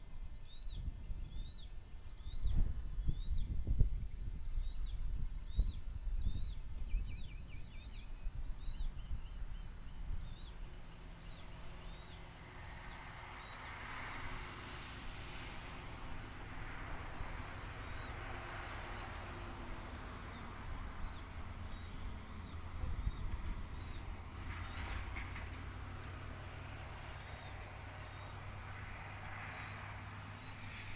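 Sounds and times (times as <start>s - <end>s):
bird chirping: 0.4s - 3.6s, 4.6s - 13.7s, 20.2s - 25.0s.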